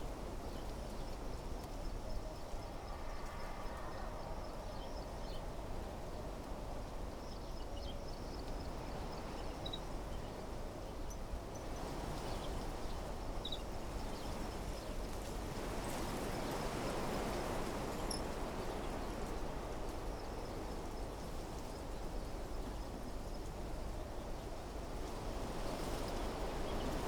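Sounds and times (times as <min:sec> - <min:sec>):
wind rustling through trees: 0:00.0 - 0:27.0.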